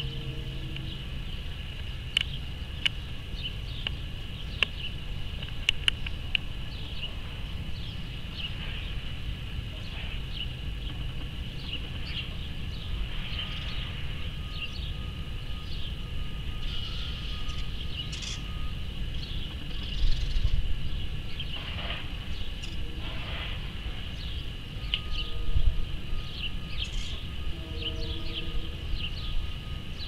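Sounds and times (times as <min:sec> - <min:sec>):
birds chirping: 0:00.0 - 0:30.0
high-pitched hum: 0:00.0 - 0:30.0
low outdoor rumble: 0:00.0 - 0:30.0.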